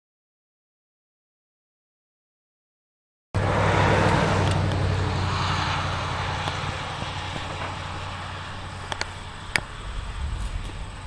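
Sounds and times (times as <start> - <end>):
low hum: 3.4 - 11.0
road vehicle passing: 3.4 - 11.0.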